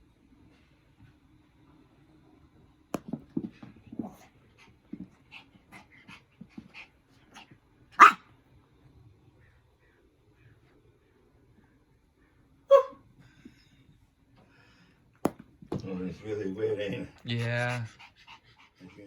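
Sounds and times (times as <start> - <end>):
dog barking sharply: 8.0 - 8.2, 12.7 - 13.0.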